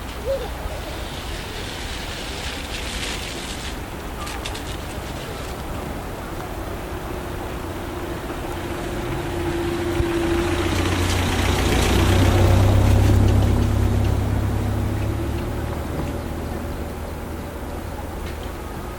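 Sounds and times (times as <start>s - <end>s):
vehicle engine passing by: 6.0s - 18.9s.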